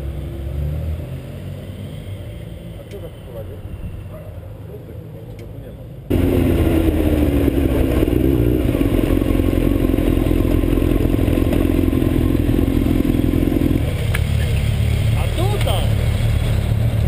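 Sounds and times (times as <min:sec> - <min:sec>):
motorcycle engine cruising: 0:06.1 - 0:17.0.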